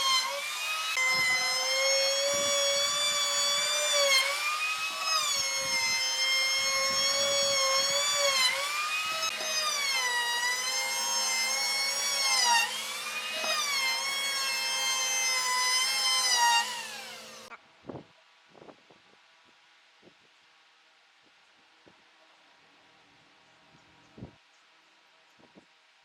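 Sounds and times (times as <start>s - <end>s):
power tool motor whining: 0.0s - 17.5s.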